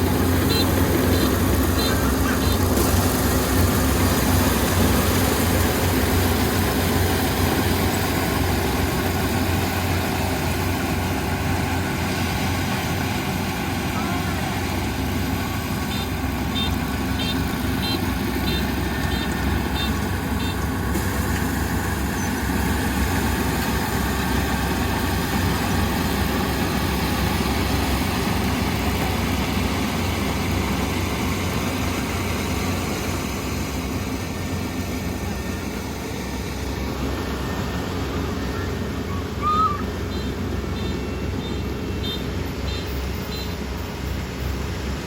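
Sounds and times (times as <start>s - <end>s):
combine harvester diesel engine: 0.0s - 45.0s.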